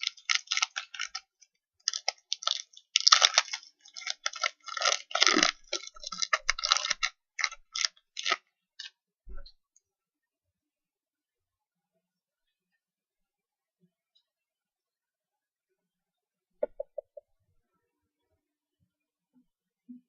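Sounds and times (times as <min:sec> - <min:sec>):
card pack crinkling and tearing: 0:00.0 - 0:08.9.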